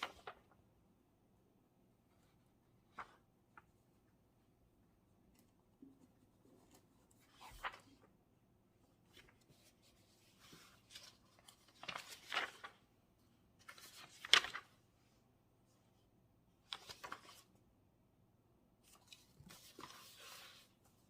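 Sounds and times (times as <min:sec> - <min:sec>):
papers rustling: 0:06.3 - 0:08.1, 0:09.0 - 0:12.9, 0:13.6 - 0:14.8, 0:16.6 - 0:17.6, 0:18.8 - 0:21.0.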